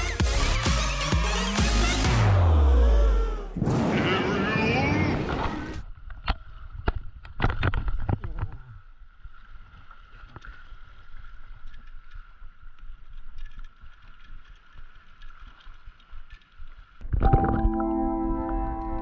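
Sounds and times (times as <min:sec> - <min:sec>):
seawater sloshing and lapping: 0:09.0 - 0:17.0
thin steady high tone: 0:17.3 - 0:19.0.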